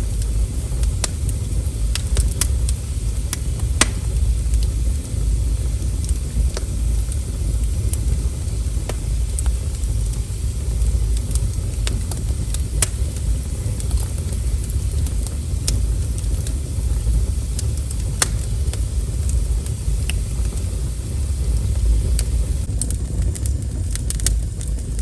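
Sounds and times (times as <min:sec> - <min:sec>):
burning wood crackling and popping: 0:00.0 - 0:25.0
fire flames rumbling: 0:00.0 - 0:25.0.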